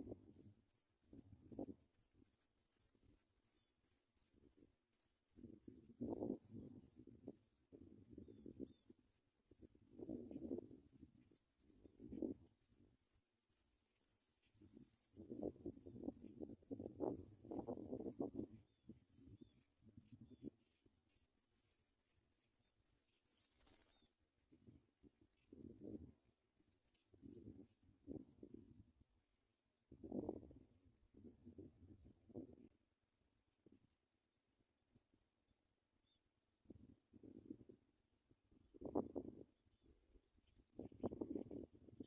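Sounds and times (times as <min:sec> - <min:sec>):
cricket chirping: 0:01.5 - 0:06.2, 0:10.4 - 0:16.8.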